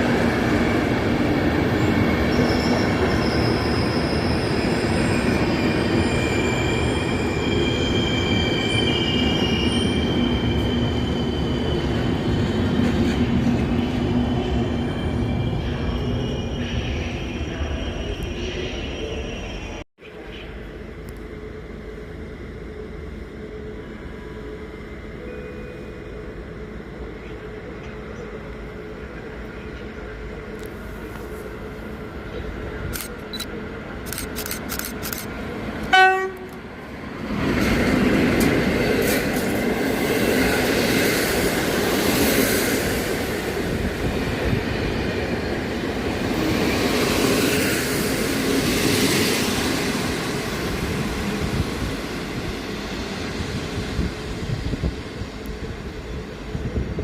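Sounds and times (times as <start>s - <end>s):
train rumbling on rails: 0.0s - 57.0s
locomotive horn blast: 35.9s - 36.6s.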